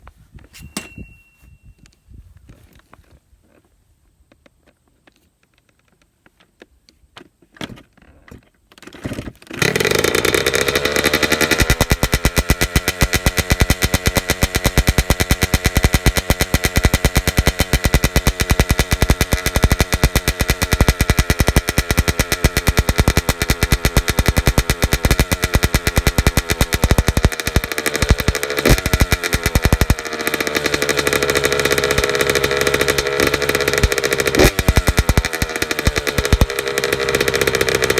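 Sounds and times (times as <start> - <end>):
dirt bike engine idling: 9.7 - 37.9.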